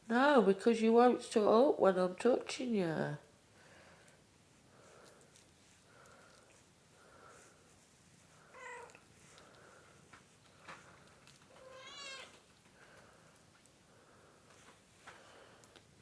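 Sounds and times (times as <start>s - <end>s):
cat meowing softly: 8.5s - 9.1s, 11.5s - 12.5s
faint clicks: 14.5s - 15.9s.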